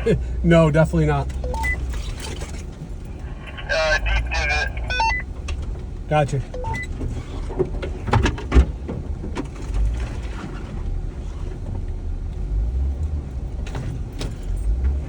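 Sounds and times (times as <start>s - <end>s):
vehicle rumbling on dirt trail: 0.0s - 15.0s
vehicle knocks and rattles: 5.3s - 12.0s, 13.2s - 15.0s.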